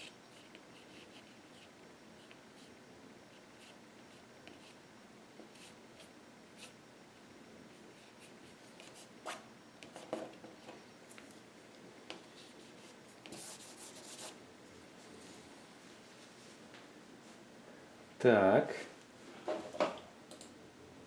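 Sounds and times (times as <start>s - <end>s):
paintbrush scratchy rubbing: 13.3s - 14.4s.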